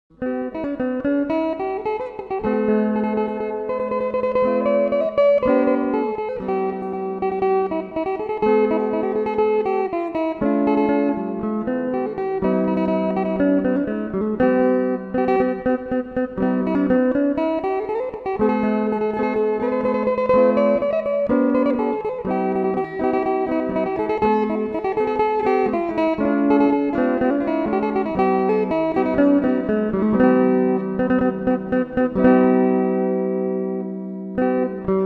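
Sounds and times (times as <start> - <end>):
plucked lute melody with drone: 0.1 - 35.0.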